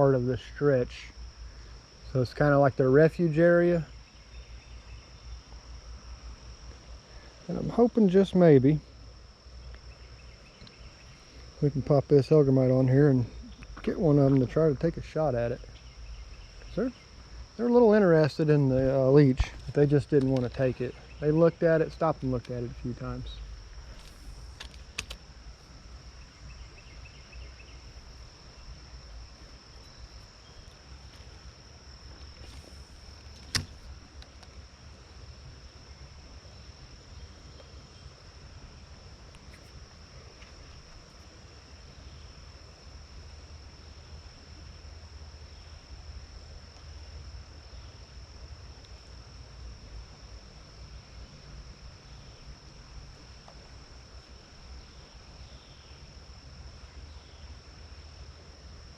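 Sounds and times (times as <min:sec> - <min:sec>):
thin high-pitched whine: 0:06.4 - 0:44.8
sharp click: 0:24.0 - 0:25.2, 0:32.3 - 0:34.5.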